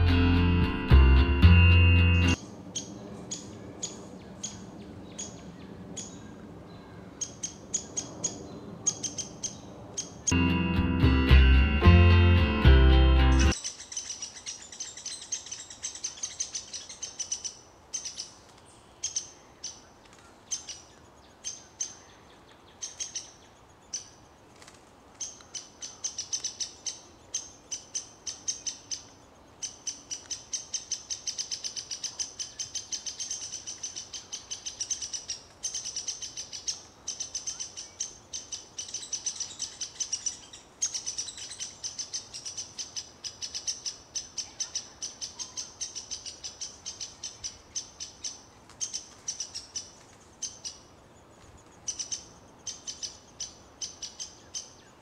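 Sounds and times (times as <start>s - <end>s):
bird chirping rapidly: 7.2s - 10.4s, 25.6s - 50.9s, 51.8s - 54.8s.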